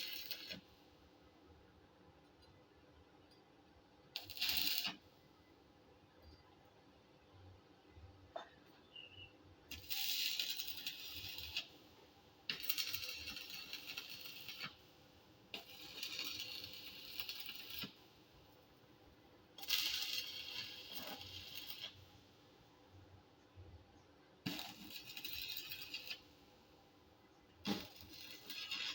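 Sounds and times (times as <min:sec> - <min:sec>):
electric arc welding crackling: 0:00.0 - 0:00.7, 0:04.2 - 0:05.0, 0:09.7 - 0:14.9, 0:15.6 - 0:18.6, 0:19.6 - 0:22.1, 0:24.4 - 0:26.4, 0:27.6 - 0:28.9.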